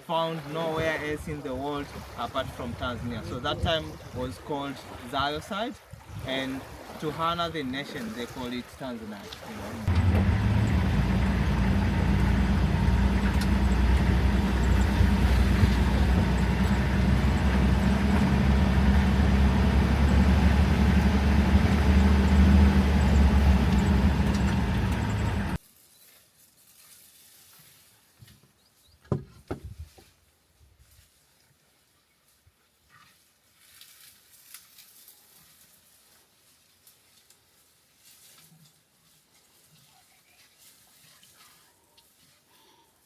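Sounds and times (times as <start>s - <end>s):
vehicle engine and road rumble: 9.8s - 25.6s.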